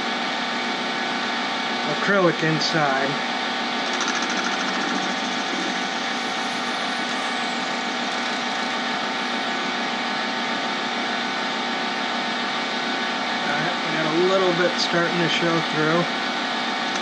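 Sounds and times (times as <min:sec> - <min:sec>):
lathe humming: 0:03.7 - 0:12.2.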